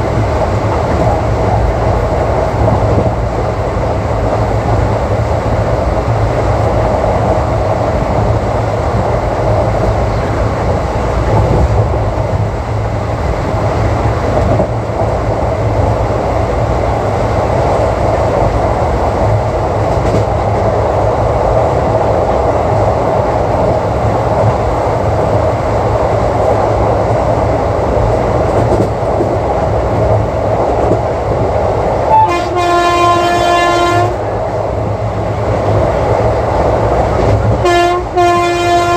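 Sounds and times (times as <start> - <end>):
train wheels rumbling on rails: 0.0 - 38.9
locomotive horn blast: 32.1 - 34.3, 37.6 - 38.9.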